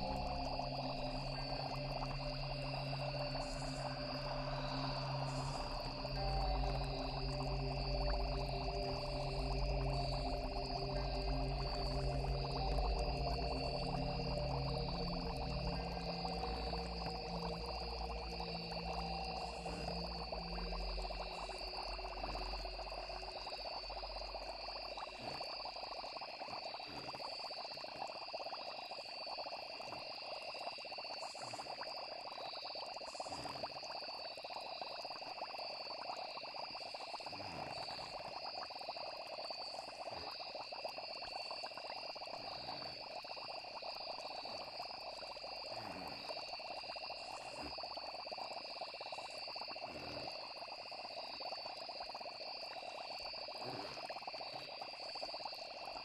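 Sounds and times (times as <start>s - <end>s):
low music drone: 0.0s - 24.5s
frogs and crickets trilling: 0.0s - 56.0s.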